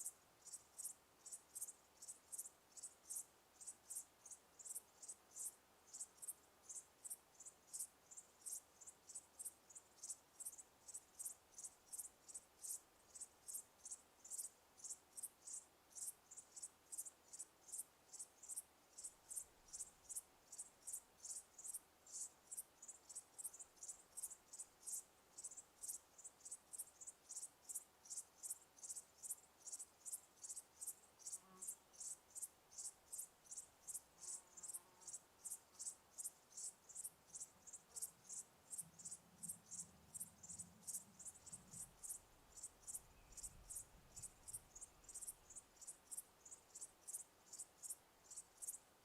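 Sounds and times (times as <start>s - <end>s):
cricket chirping: 0.0s - 49.0s.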